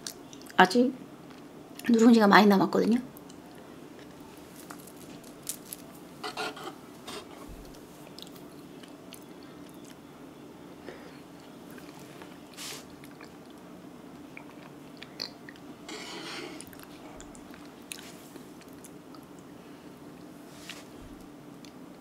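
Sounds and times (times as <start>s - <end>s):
faint steady hum: 0.0s - 22.0s
person chewing: 11.4s - 13.6s, 14.2s - 15.7s, 16.5s - 19.5s.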